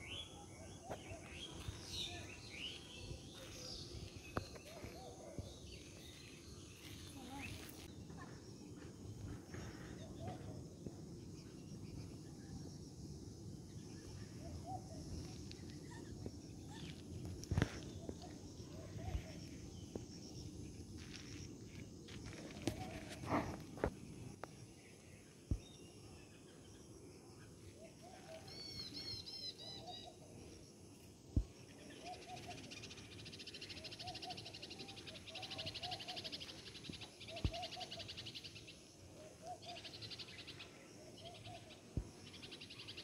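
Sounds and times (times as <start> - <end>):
birds chirping: 0.0 - 12.3.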